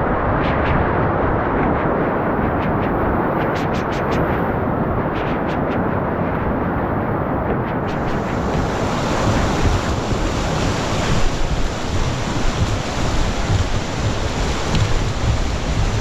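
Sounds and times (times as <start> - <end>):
wind buffeting microphone: 0.0 - 16.0
whitewater rushing: 7.9 - 16.0.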